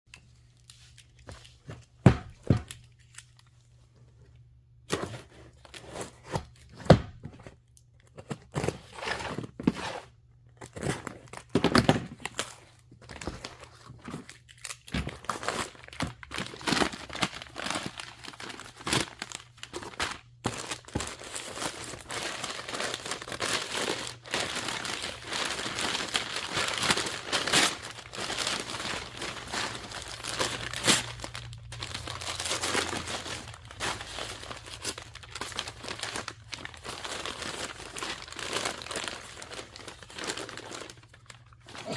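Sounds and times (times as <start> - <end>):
wrapping paper tearing and crumpling: 13.2 - 41.9.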